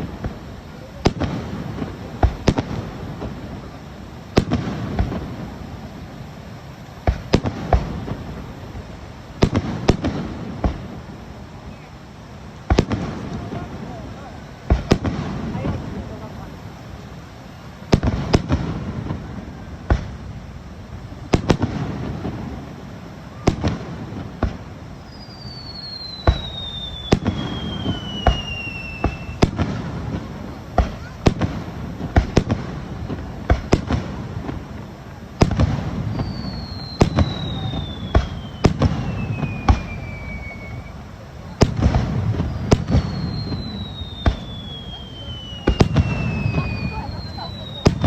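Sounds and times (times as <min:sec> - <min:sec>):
fireworks bursting: 0:00.0 - 0:48.0
firework whistle sliding down: 0:25.0 - 0:30.2, 0:36.0 - 0:41.7, 0:42.3 - 0:48.0.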